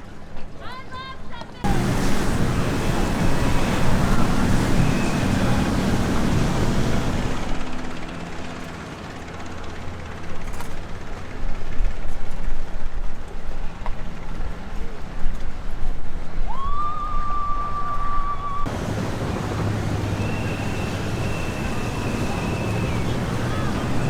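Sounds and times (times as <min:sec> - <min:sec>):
water noise: 0:01.6 - 0:07.6, 0:18.7 - 0:24.0
wind noise: 0:01.6 - 0:07.6, 0:18.7 - 0:24.0
motorboat engines running: 0:01.6 - 0:07.8, 0:18.7 - 0:24.0.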